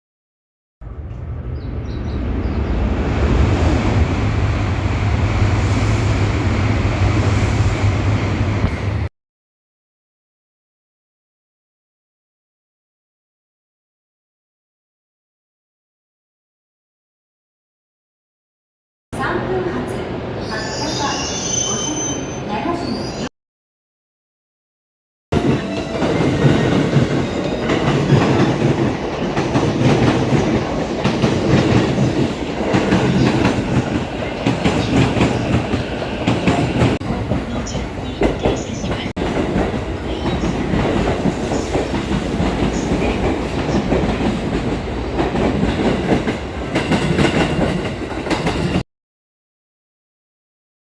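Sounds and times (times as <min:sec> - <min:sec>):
train wheels on track: 0:25.4 - 0:48.8.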